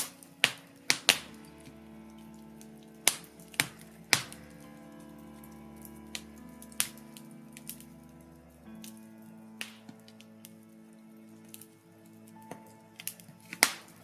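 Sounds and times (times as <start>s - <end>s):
fire crackling and popping: 0.0s - 9.0s
soft background music: 0.0s - 14.0s.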